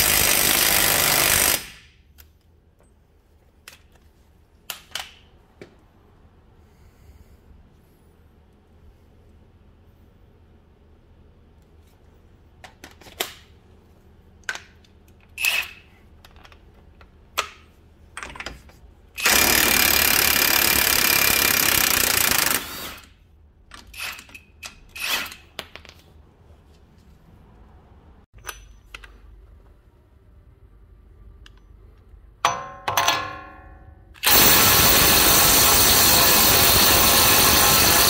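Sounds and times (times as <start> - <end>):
impact wrench hammering: 19.2 - 22.7, 32.4 - 38.0.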